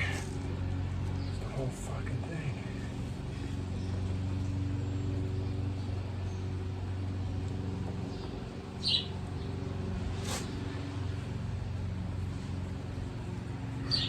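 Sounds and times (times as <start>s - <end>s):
small gasoline engine running: 0.0s - 14.0s
short high hiss: 10.2s - 10.6s.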